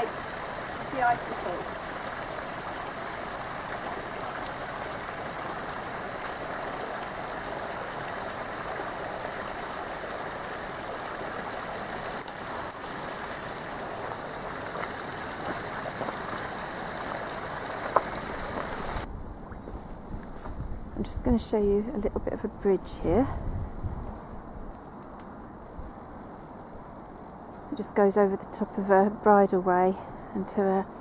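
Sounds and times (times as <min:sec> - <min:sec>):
running water rushing: 0:00.0 - 0:19.1.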